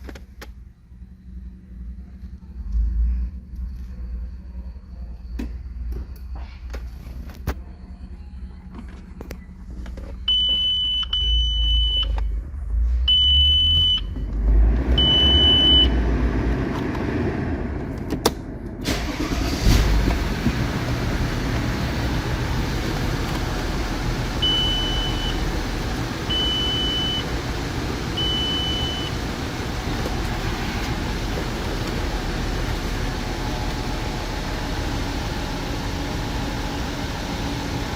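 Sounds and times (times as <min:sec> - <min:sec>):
low rumble: 0:00.5 - 0:36.9
dashboard warning chime beeping: 0:10.3 - 0:12.3, 0:13.1 - 0:14.2, 0:15.0 - 0:15.9, 0:24.2 - 0:30.9
car engine running: 0:14.0 - 0:37.9.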